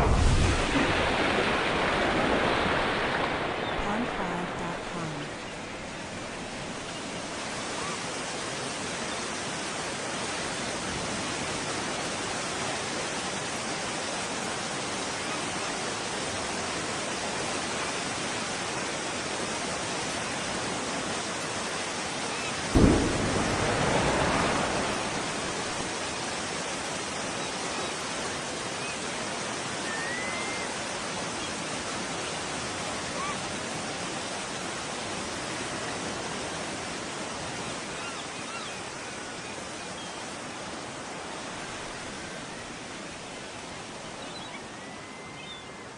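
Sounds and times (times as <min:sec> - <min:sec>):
underwater explosion boom: 0:00.0 - 0:03.2, 0:22.8 - 0:26.2
steady surf-like noise: 0:00.0 - 0:45.9.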